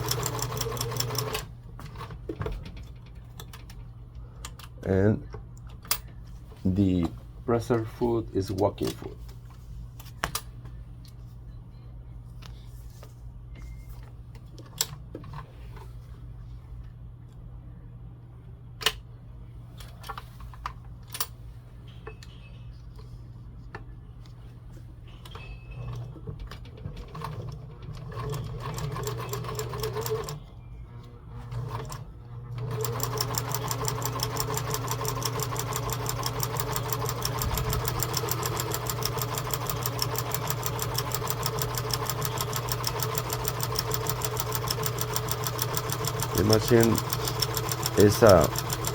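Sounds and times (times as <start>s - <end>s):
sewing machine stitching: 0.0s - 2.1s, 26.8s - 30.4s, 31.4s - 48.9s.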